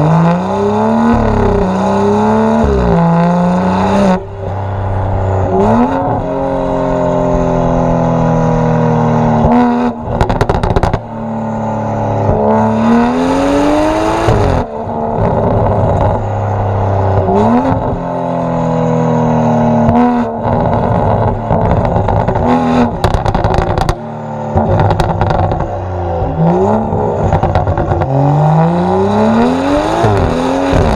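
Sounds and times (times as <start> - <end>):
car engine accelerating through gears: 0.0 - 30.9
exhaust crackles and pops: 9.4 - 11.2, 14.2 - 16.2, 19.8 - 28.4, 30.0 - 30.9.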